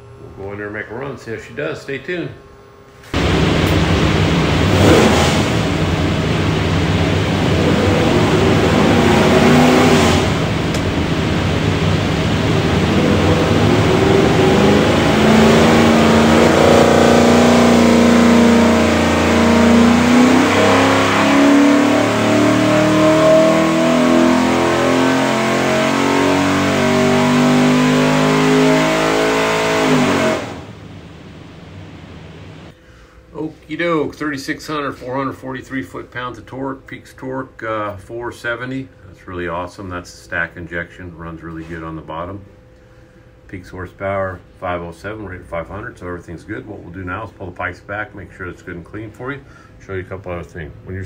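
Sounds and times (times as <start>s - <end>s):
engine running hard: 3.2s - 32.7s.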